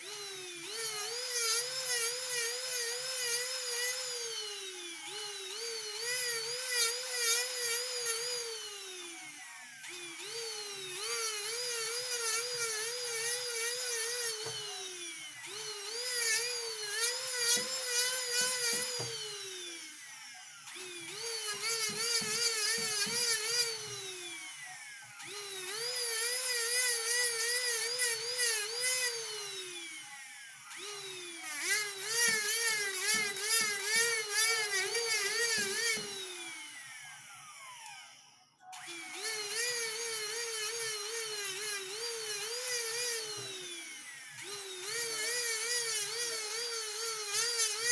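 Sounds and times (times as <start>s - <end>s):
rotary tool whining: 0.0s - 47.9s
bit grinding metal: 15.5s - 19.5s.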